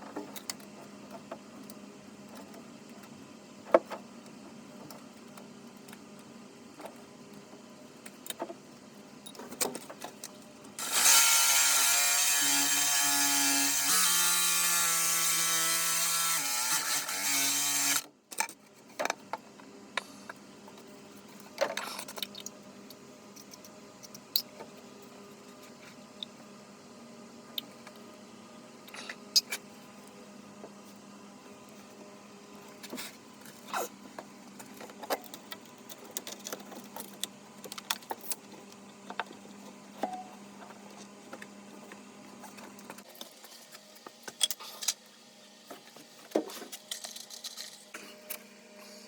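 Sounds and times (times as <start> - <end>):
small motor running: 10.8 - 18.0.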